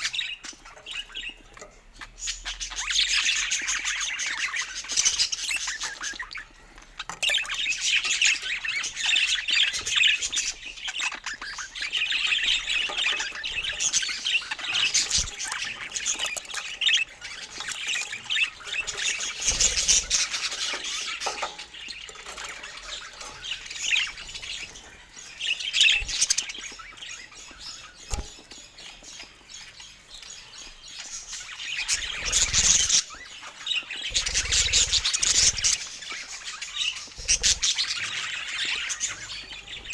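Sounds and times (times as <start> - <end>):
parakeets chattering and squawking: 0.0 - 39.9.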